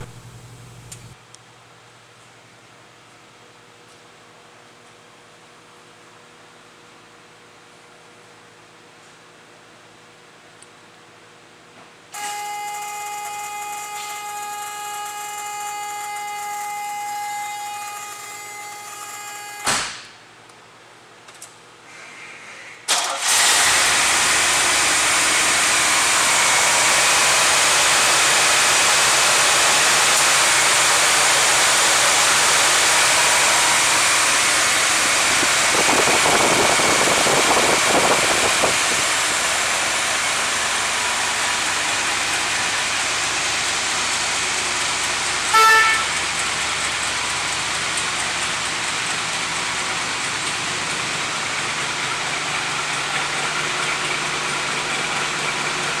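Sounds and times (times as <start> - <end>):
car engine starting and running: 0.0 - 1.2, 22.9 - 56.0
car horn beep: 45.5 - 46.2.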